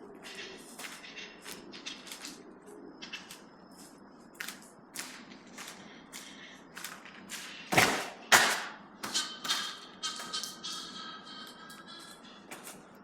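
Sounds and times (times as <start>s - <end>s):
footsteps scuffing: 0.2s - 2.4s, 3.0s - 7.9s.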